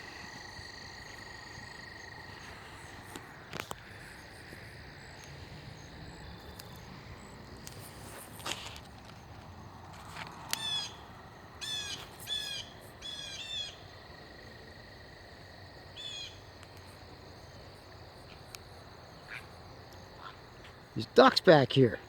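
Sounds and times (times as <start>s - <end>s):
faint insect trill: 0.0s - 22.0s
blue jays calling: 10.6s - 11.0s, 11.6s - 13.8s.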